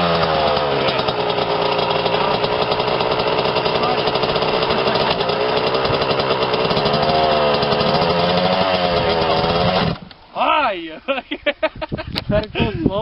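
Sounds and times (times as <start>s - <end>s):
motocross bike engine revving: 0.0s - 10.1s.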